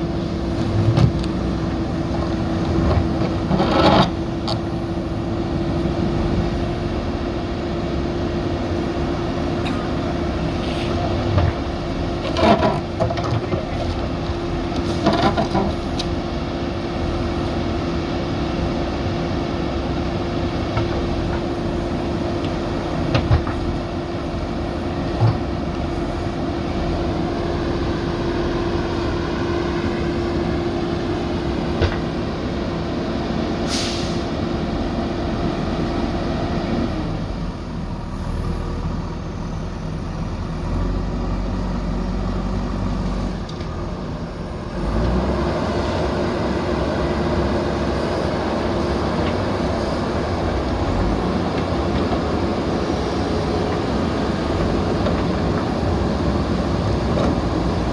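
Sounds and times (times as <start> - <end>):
diesel engine running: 0.0 - 57.9
short hiss: 33.7 - 34.2.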